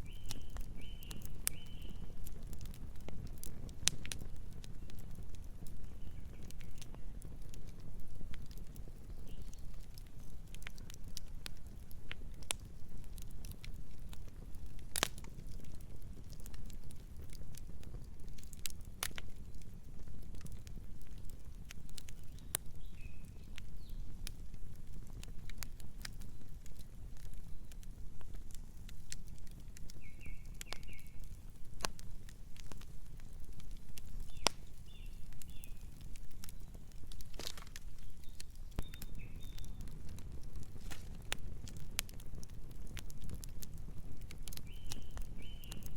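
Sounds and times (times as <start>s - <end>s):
wood crackling and popping: 0.0s - 45.9s.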